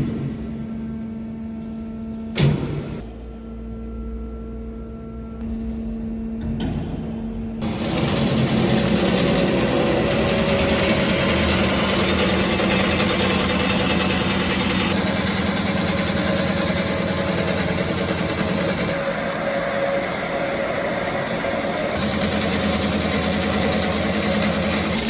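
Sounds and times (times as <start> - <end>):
band saw machine running: 7.6 - 25.0.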